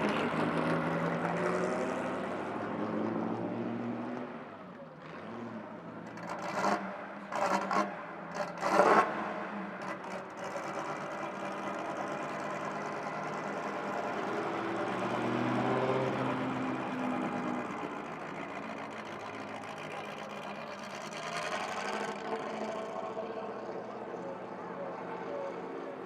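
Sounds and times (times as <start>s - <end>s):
car engine running: 16.4s - 23.8s.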